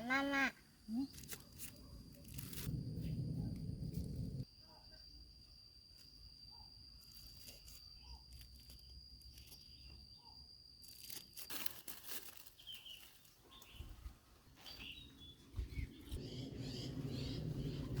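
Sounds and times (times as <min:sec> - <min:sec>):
high insect tone: 0:00.0 - 0:13.8
crunching handling noises: 0:10.8 - 0:13.9
bird chirps: 0:14.6 - 0:18.0.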